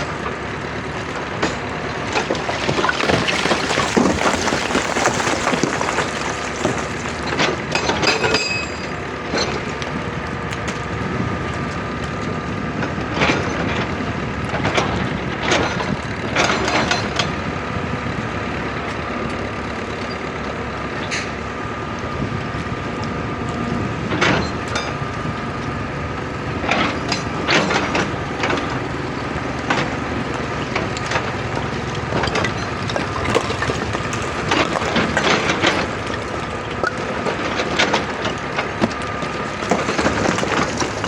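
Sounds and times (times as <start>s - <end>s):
excavator diesel engine running: 0.0s - 13.2s, 27.3s - 41.0s
bucket scraping earth and rock: 1.0s - 8.2s, 31.7s - 38.2s, 38.8s - 41.0s.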